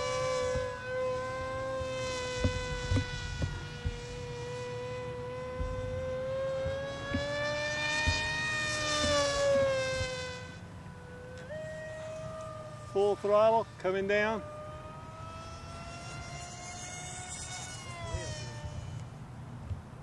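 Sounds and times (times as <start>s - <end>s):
model airplane motor buzzing: 0.0s - 20.0s
low thumps: 0.3s - 4.5s, 5.4s - 10.2s.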